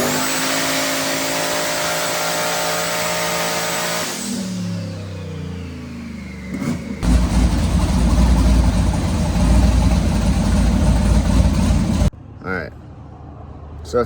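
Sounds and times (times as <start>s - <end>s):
vehicle engine rumbling: 4.5s - 12.4s.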